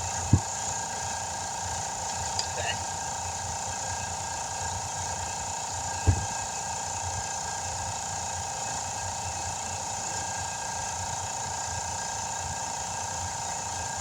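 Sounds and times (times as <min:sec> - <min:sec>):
steady mechanical hum: 0:00.0 - 0:14.0
dull low thump: 0:06.0 - 0:06.4.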